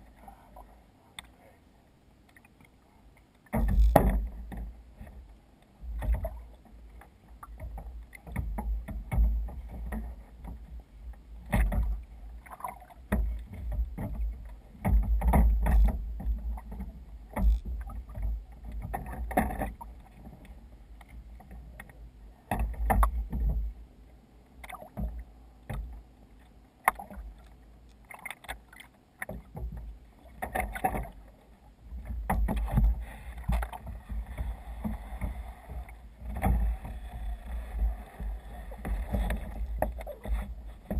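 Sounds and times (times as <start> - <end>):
water splashing against kayak hull: 2.2 - 23.9, 24.5 - 40.9.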